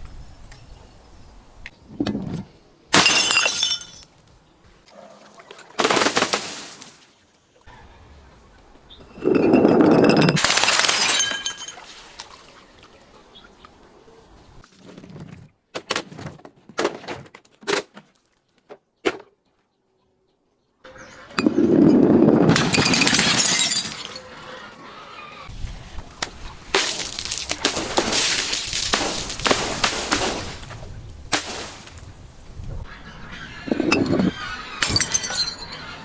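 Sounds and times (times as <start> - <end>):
glass bottles smashing: 2.9 - 4.1, 9.1 - 12.0, 22.5 - 24.3, 26.8 - 29.7, 34.8 - 35.8
clatter of glass shards: 9.2 - 11.8.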